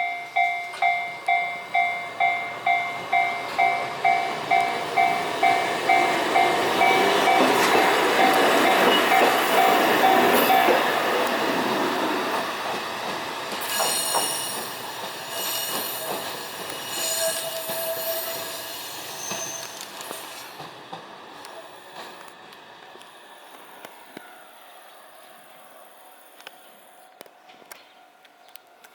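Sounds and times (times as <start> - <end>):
tram pulling away: 0.0 - 28.9
high-pitched wheel squeal: 15.3 - 20.4.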